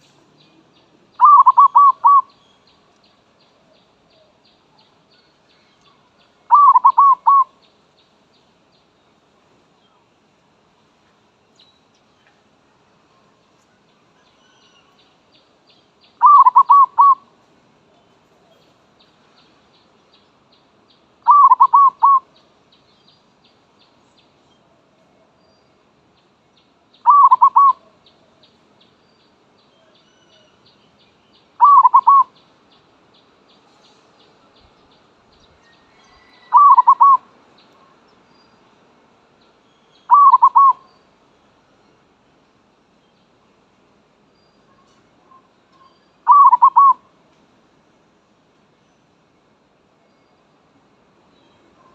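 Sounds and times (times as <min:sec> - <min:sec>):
dove cooing: 0:01.2 - 0:02.3, 0:06.5 - 0:07.5, 0:16.2 - 0:17.2, 0:21.3 - 0:22.3, 0:27.1 - 0:27.8, 0:31.6 - 0:32.3, 0:36.5 - 0:37.2, 0:40.1 - 0:40.8, 0:46.2 - 0:47.0.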